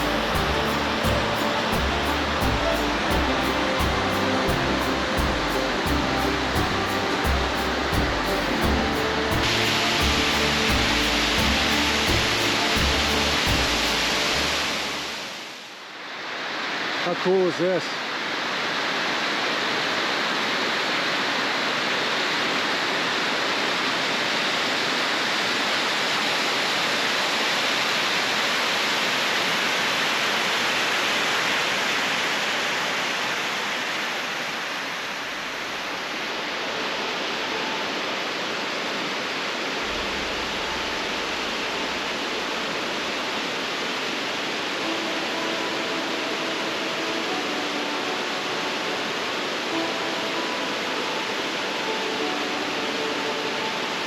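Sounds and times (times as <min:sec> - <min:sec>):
faint music: 0:00.0 - 0:15.6, 0:35.2 - 0:54.0
creek water rushing: 0:00.0 - 0:54.0.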